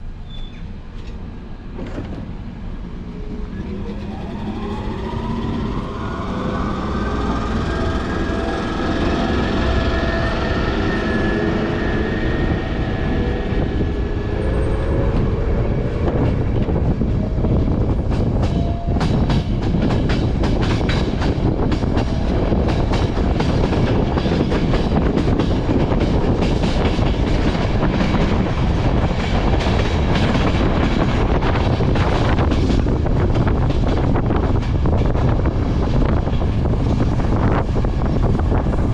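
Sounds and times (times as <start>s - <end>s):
train rumbling on rails: 0.0s - 38.9s
train wheels squealing: 0.2s - 0.8s, 3.2s - 13.6s.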